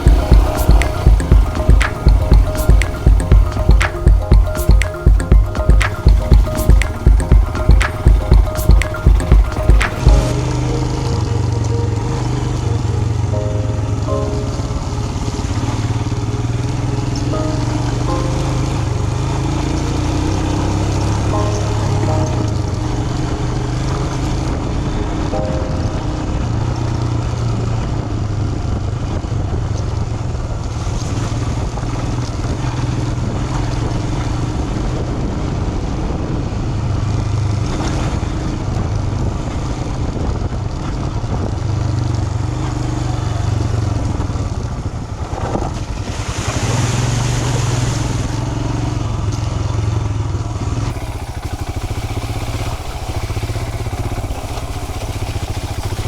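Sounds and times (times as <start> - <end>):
motorcycle engine running: 48.3 - 56.0
rushing hiss: 50.9 - 56.0.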